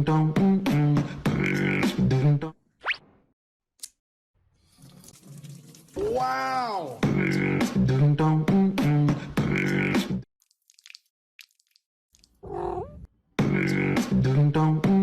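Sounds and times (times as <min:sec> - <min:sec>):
beatbox-like vocal music: 0:00.8 - 0:02.1, 0:07.0 - 0:10.2, 0:13.4 - 0:15.0.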